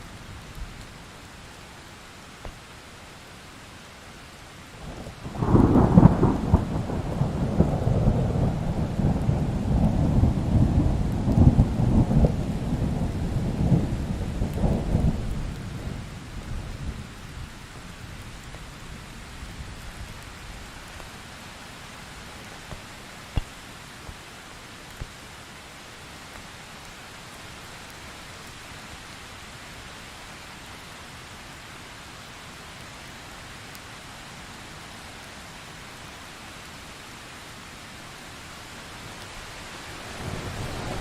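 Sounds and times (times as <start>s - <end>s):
steady rain: 0.0s - 41.0s
rolling thunder: 5.3s - 16.0s.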